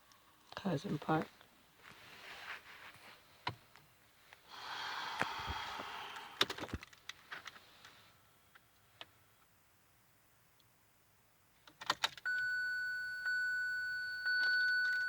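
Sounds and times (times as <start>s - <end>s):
soft rustle: 0.5s - 4.5s.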